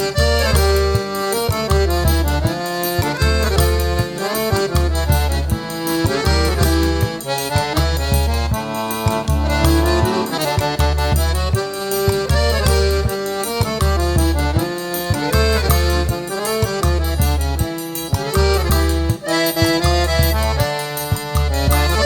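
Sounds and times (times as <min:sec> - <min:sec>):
accordion melody: 0:00.0 - 0:22.0
bright fast percussion: 0:06.0 - 0:13.0
steady bass beat: 0:07.7 - 0:11.7.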